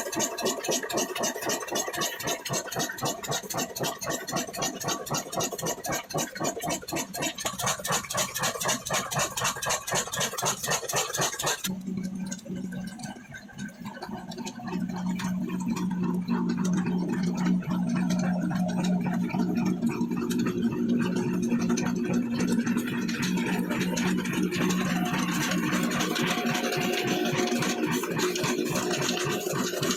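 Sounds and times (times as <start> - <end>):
diesel engine beat: 0.0 - 29.9
steady low hum: 11.7 - 29.9.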